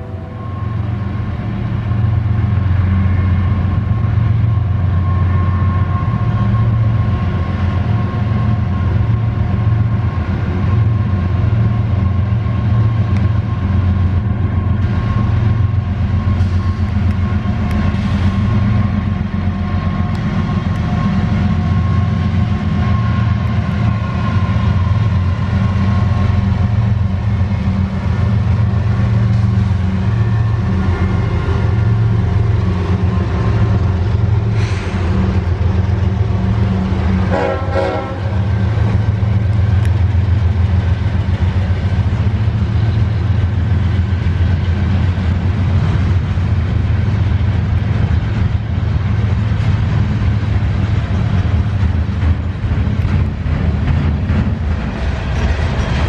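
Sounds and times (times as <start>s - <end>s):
diesel freight train rumbling past: 0.0s - 56.0s.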